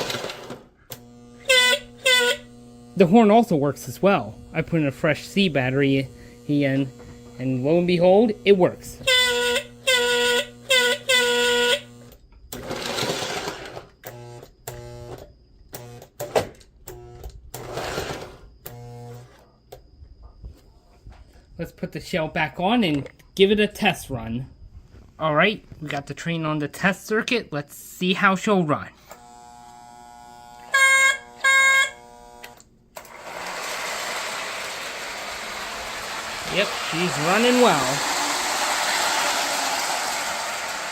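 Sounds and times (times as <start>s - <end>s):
electrical hum: 0.0s - 40.9s
toy train buzzer horn: 0.9s - 12.2s, 14.0s - 16.2s, 29.1s - 32.6s, 33.3s - 38.4s
model train horn blasts: 1.2s - 3.0s, 9.0s - 12.0s, 30.6s - 32.2s
model train rumbling on track: 33.1s - 40.9s.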